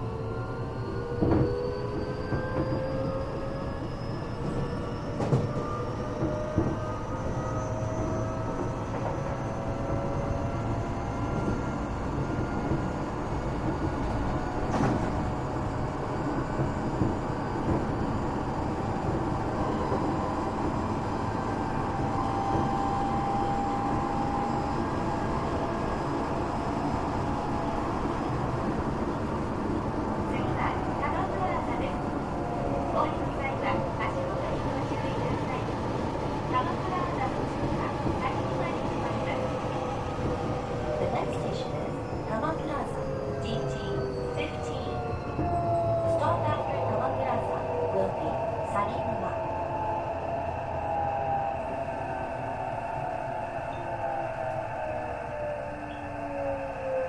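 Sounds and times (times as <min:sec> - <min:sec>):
train running rumble: 0:05.2 - 0:49.3.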